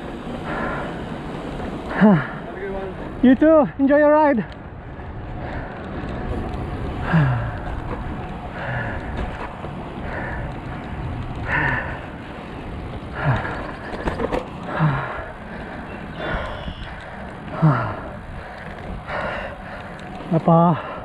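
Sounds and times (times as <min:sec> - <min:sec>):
heavy breathing: 0:00.4 - 0:03.2, 0:04.7 - 0:21.0
wind on microphone: 0:04.6 - 0:20.2.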